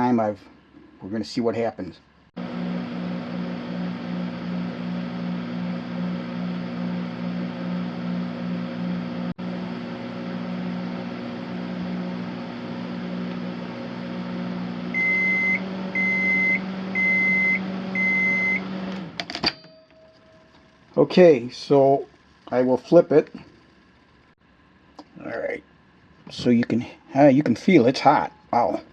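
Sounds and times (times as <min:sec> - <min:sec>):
microwave oven humming: 0:02.4 - 0:24.8
microwave beeps: 0:14.9 - 0:18.9.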